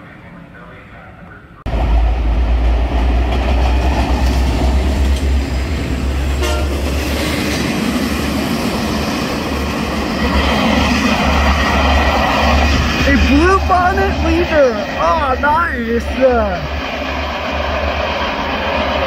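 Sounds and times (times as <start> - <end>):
diesel locomotive rumble: 0.1 - 19.0
train wheels rolling on rails: 1.7 - 15.0.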